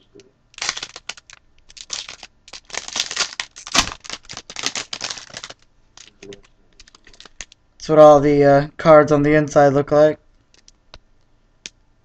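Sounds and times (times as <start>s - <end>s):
wrapper tearing and crinkling: 0.5s - 7.6s, 10.4s - 10.8s
sharp snap of wrapper: 10.5s - 11.0s.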